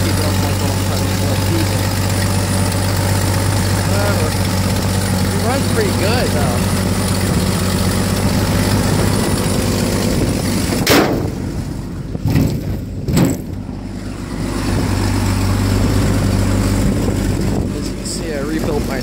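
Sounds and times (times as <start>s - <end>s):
engine idling: 0.0s - 19.0s
loud sharp bangs: 10.8s - 13.6s.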